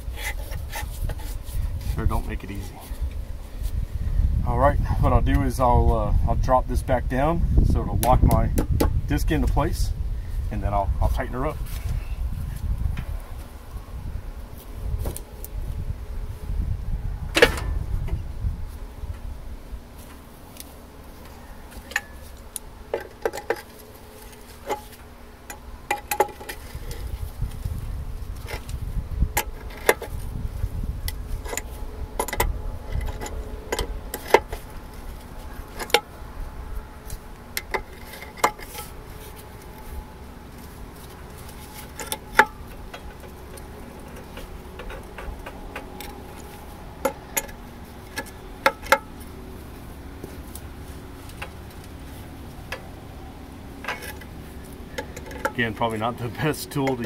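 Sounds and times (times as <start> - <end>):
low rumble: 0.0 - 21.7.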